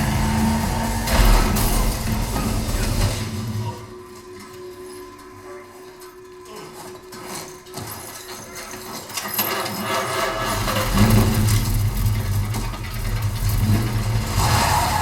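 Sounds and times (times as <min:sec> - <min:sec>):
car engine running: 0:00.0 - 0:03.9, 0:10.6 - 0:15.0
deep low rumble: 0:00.0 - 0:04.0.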